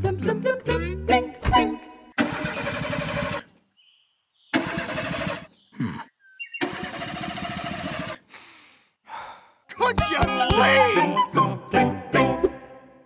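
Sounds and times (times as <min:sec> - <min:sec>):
car engine cranking: 0:02.2 - 0:03.4, 0:04.6 - 0:05.5, 0:06.6 - 0:08.2
engine sputter: 0:02.2 - 0:03.5, 0:04.5 - 0:05.5, 0:06.6 - 0:08.2.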